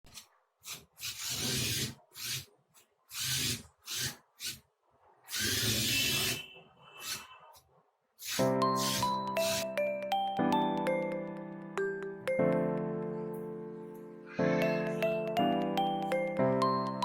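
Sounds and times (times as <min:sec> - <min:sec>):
small electric motor bursts: 0:03.1 - 0:04.6, 0:05.3 - 0:07.3, 0:08.2 - 0:09.6.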